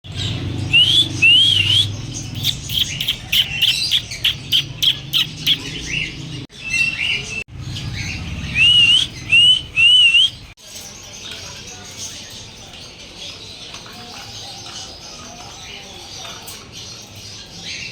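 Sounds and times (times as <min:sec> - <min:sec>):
birds calling: 0:00.0 - 0:17.9
sharp rapid bird chirps: 0:00.6 - 0:05.8, 0:06.6 - 0:10.5.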